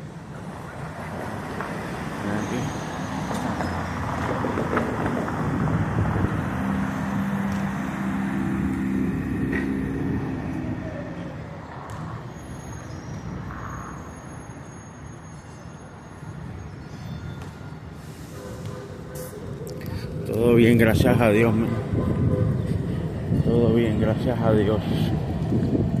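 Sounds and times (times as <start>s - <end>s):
heavy vehicle engine hum: 0.0s - 16.3s
city street traffic: 0.0s - 26.0s.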